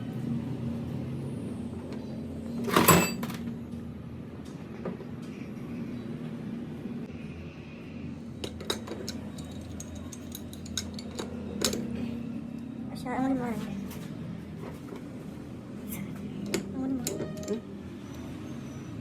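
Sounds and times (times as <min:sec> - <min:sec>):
metal tools clattering: 0:02.6 - 0:03.5, 0:08.4 - 0:11.8
light metal clicks and clinks: 0:08.4 - 0:11.9.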